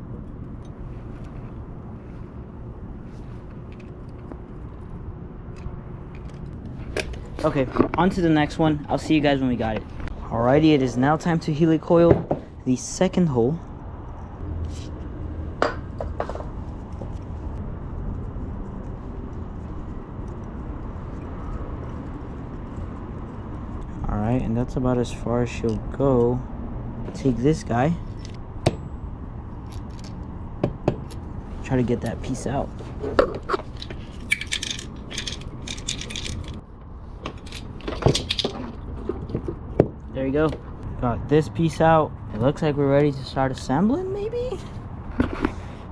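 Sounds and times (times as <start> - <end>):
low background hum: 0.0 - 45.9
metal hand tools clicking: 33.8 - 36.6.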